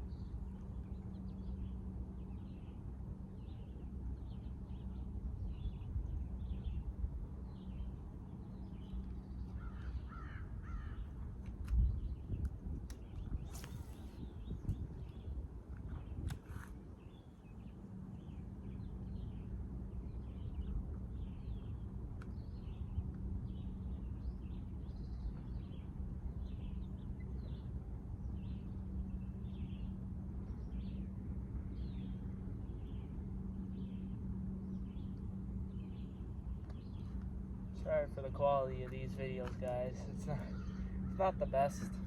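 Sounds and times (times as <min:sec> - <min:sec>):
low machinery hum: 0:00.0 - 0:42.0.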